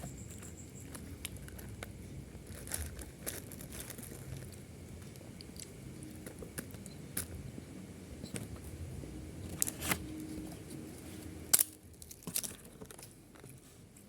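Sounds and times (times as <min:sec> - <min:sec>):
small clicks and crackles: 0:00.0 - 0:07.4, 0:11.5 - 0:14.0
chewing and crunching food: 0:00.1 - 0:06.9.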